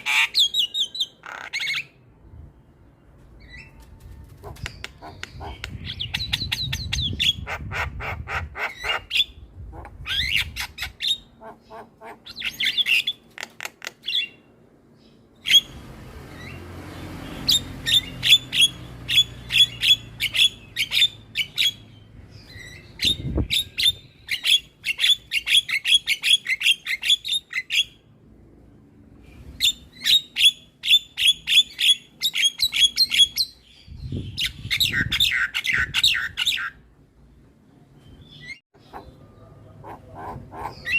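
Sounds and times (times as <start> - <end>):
bird harsh chattering calls: 0.0 - 2.0, 4.4 - 14.4, 17.2 - 28.0, 38.8 - 40.9.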